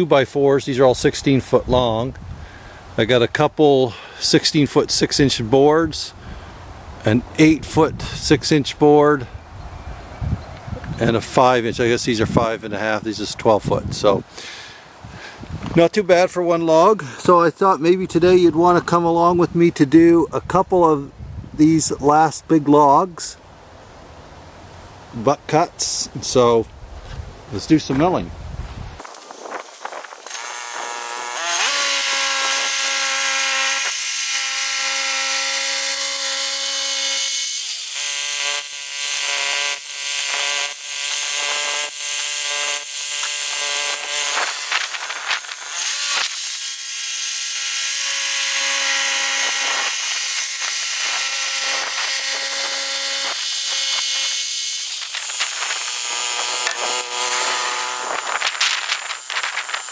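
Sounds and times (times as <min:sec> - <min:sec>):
bandsaw cutting log: 0:29.0 - 0:59.9.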